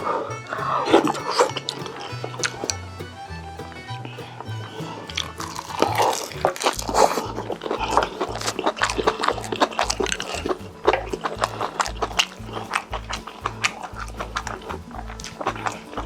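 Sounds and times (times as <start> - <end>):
chewing and crunching: 0.0 - 2.8, 5.1 - 16.0.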